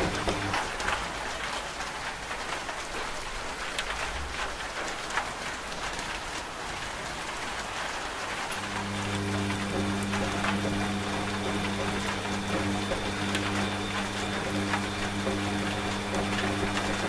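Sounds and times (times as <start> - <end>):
washing machine motor hum: 0.0 - 1.1, 8.4 - 17.0
rain falling on a surface: 0.0 - 17.0.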